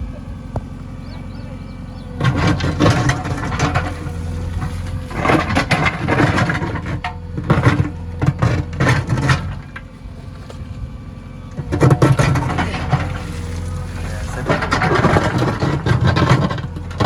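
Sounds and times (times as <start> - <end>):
diesel engine under load: 0.0 - 17.0
clattering and scraping knocks: 0.5 - 10.8, 11.5 - 17.0.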